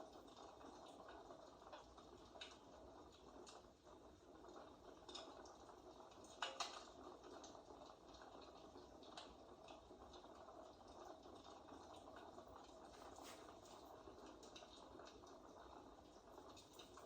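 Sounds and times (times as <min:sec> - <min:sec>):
fireplace crackling: 0:12.5 - 0:14.7.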